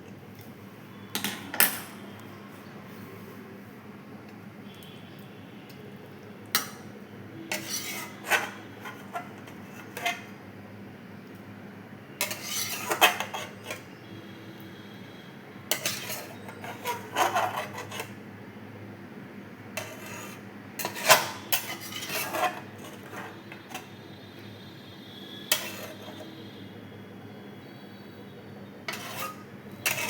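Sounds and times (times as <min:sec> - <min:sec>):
spoon scraping a cooking pan: 0:07.5 - 0:10.4, 0:12.2 - 0:13.9, 0:15.7 - 0:18.2, 0:19.7 - 0:24.0, 0:25.5 - 0:26.4, 0:28.8 - 0:30.0.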